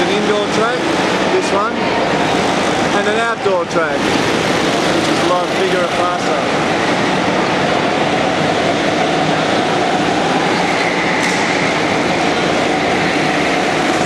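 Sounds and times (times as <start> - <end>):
go-kart engines droning: 4.0 - 14.0.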